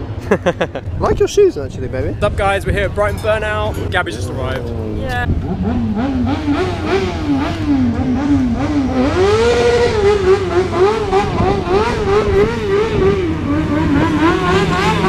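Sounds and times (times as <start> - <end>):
motorcycle engine revving: 4.3 - 15.0.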